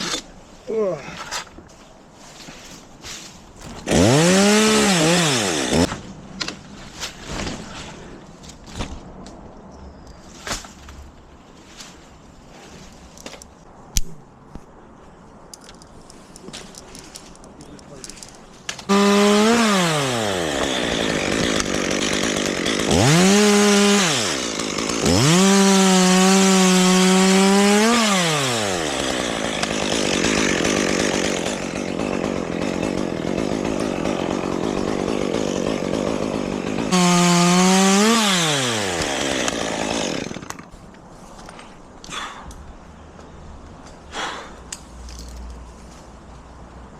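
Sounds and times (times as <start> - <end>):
chainsaw revving: 3.8 - 5.9, 18.9 - 40.5.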